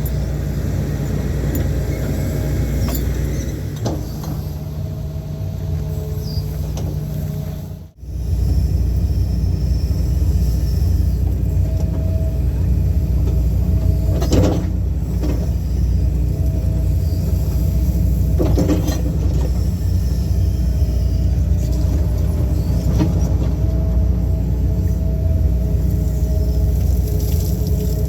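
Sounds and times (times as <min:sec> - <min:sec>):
diesel excavator engine running: 0:00.0 - 0:28.0
faint steady whine: 0:00.0 - 0:28.0.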